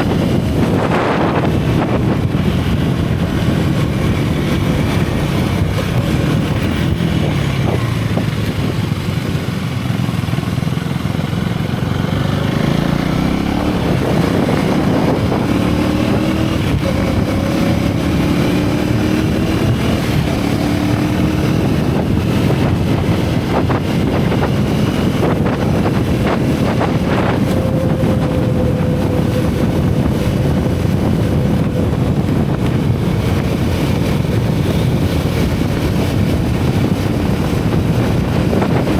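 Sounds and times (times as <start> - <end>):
motorcycle engine and exhaust: 0.0 - 38.9
wind on microphone: 0.0 - 38.9.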